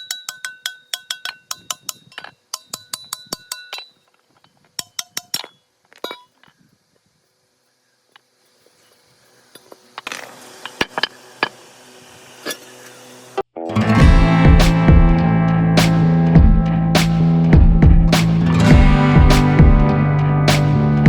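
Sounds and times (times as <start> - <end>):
small metal parts clinking: 0.0 - 6.5
faint steady hiss: 0.1 - 13.4.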